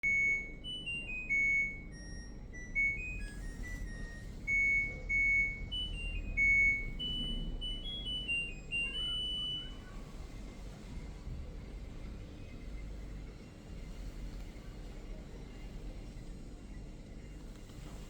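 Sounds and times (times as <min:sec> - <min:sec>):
appliance buzzer beeping tune: 0:00.0 - 0:09.6
low steady hum: 0:00.0 - 0:18.0.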